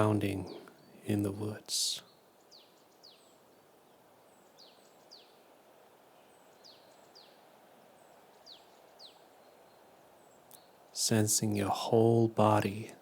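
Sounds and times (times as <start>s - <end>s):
forest ambience hiss: 0.0s - 13.0s
songbird calls: 6.2s - 11.7s.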